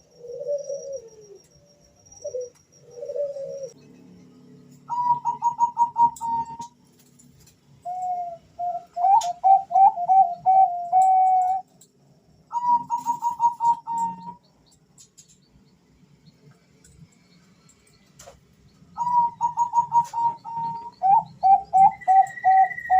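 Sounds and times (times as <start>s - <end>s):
low dove cooing: 0.0s - 1.4s, 2.2s - 3.8s, 4.9s - 6.7s, 7.8s - 11.7s, 12.5s - 14.4s, 19.0s - 22.9s.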